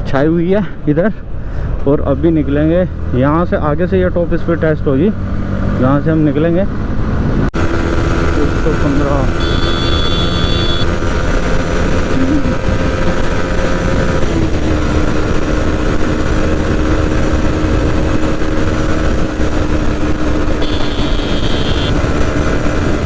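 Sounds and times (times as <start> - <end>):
motorcycle engine at high revs: 6.7 - 23.0.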